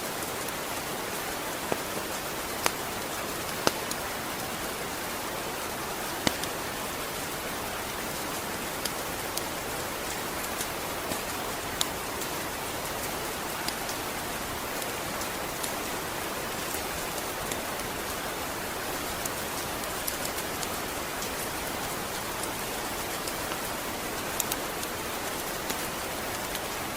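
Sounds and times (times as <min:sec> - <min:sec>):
steady rain hiss: 0:00.0 - 0:26.9
single raindrops ticking: 0:06.2 - 0:06.6.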